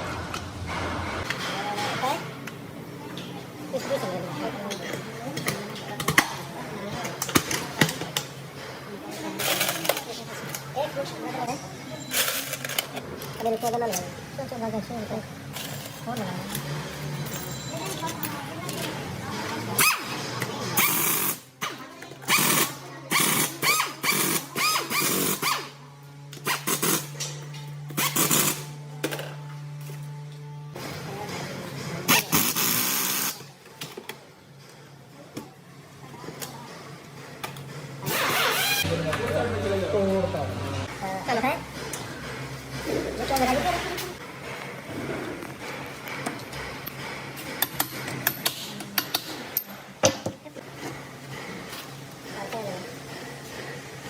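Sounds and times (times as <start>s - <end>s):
metal tools clinking: 15.5s - 18.9s.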